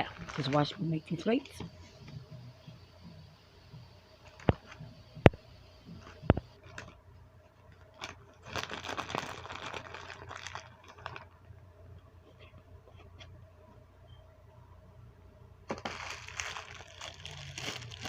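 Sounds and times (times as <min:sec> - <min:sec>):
plastic packaging crinkling: 0:00.0 - 0:00.9, 0:06.0 - 0:07.0, 0:07.6 - 0:11.4, 0:15.7 - 0:18.0.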